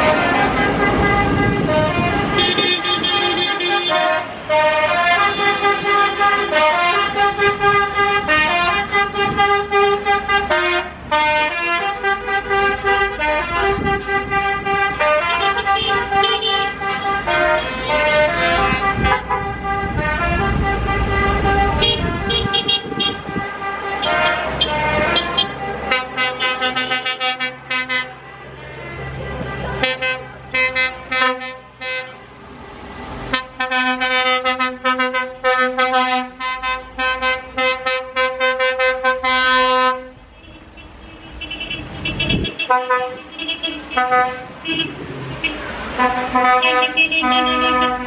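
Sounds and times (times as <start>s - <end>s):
vehicle horns tooting: 0.0s - 32.2s, 33.3s - 48.0s.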